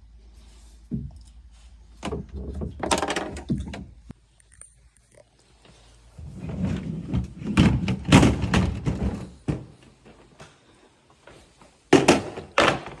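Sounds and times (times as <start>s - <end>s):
freezer drawer rolling rumble: 2.0s - 4.0s, 6.1s - 9.7s.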